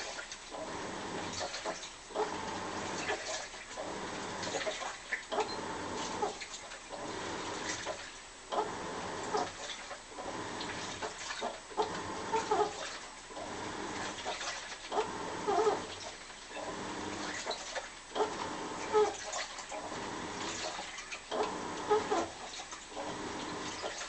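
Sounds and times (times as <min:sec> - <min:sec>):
washing machine squealing: 0:00.0 - 0:24.0
water sloshing in washing machine: 0:00.0 - 0:24.0.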